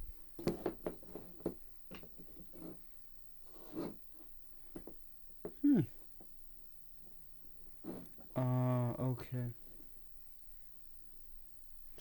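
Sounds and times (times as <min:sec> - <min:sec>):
handling noises and rubbing: 0:00.0 - 0:06.4, 0:07.0 - 0:08.4
short falling grunt-like sound: 0:05.6 - 0:05.9.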